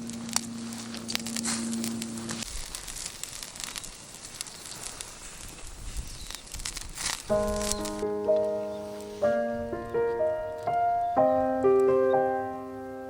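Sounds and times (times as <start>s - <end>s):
steady low hum: 0.0s - 2.5s
wood fire crackling and popping: 0.0s - 11.9s.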